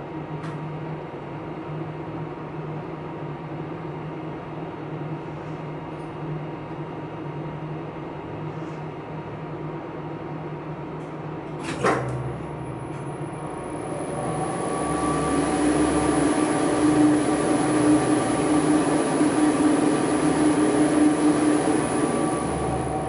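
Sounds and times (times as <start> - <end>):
elevator machinery hum: 9.1 - 23.0
high thin whine: 12.4 - 23.0.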